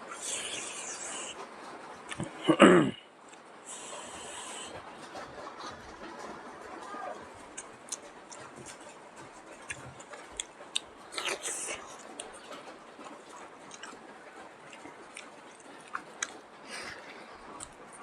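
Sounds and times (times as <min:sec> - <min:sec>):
person chewing food: 0:00.1 - 0:01.4, 0:02.0 - 0:02.6, 0:03.3 - 0:05.3, 0:07.5 - 0:18.0.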